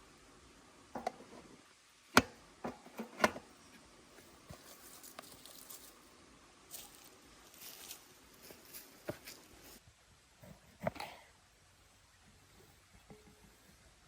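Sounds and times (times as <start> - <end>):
objects knocking and clicking: 1.0 - 1.4, 2.2 - 3.5
light ticks and rustles: 3.6 - 6.1, 6.7 - 9.8.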